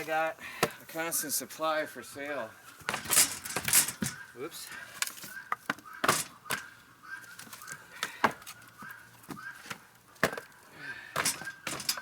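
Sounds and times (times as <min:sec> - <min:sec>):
firewood pieces knocking together: 0:09.3 - 0:10.5, 0:11.2 - 0:12.0.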